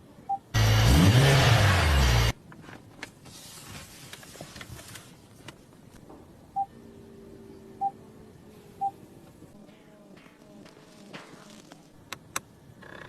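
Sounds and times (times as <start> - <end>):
faint low hum: 5.9 - 13.0.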